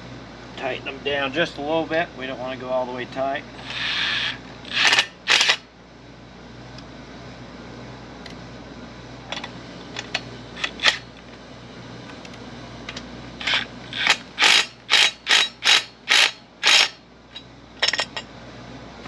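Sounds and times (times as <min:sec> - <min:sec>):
socket ratchet clicking: 0:13.4 - 0:17.0.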